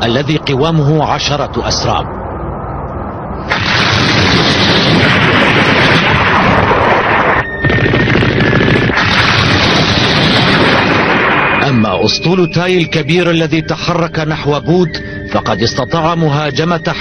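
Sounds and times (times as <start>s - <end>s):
low rumble: 2.5s - 11.7s
cartoon explosions barrage: 3.5s - 12.0s.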